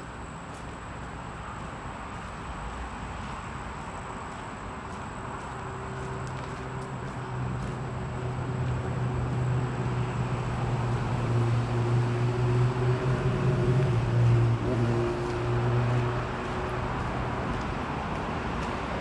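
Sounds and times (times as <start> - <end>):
motor engine drone: 8.2 - 17.8.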